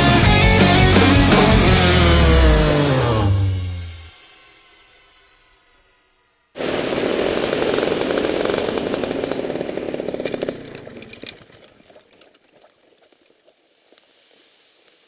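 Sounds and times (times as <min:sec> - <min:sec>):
two-stroke engine buzzing: 0:00.0 - 0:04.0, 0:06.6 - 0:11.7.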